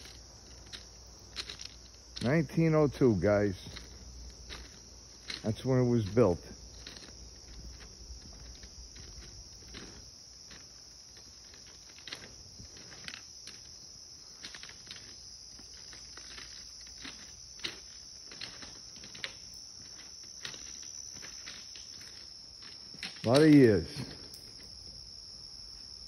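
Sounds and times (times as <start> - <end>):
crickets chirring: 0.0 - 26.0.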